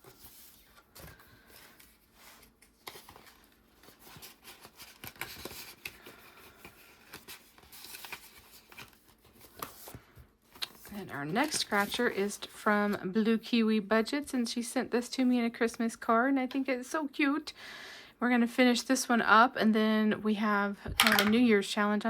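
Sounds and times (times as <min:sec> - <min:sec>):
paper rustling: 0:00.0 - 0:13.0.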